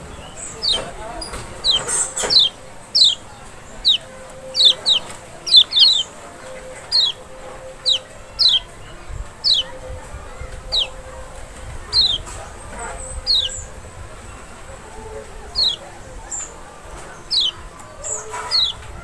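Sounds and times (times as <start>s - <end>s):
bird calling high descending notes: 1.6s - 12.4s.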